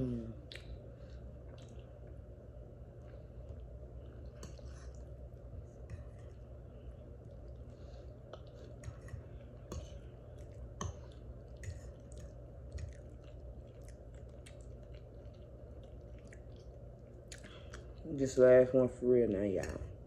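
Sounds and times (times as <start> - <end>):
person chewing food: 0.0 - 18.1
steady low hum: 0.0 - 20.0
wet mouth clicks and smacks: 0.4 - 0.8, 11.7 - 18.0.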